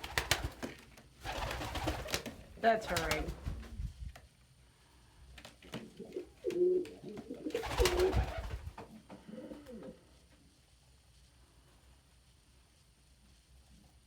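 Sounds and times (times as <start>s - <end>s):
pigeons cooing: 5.8s - 8.4s, 9.1s - 10.0s.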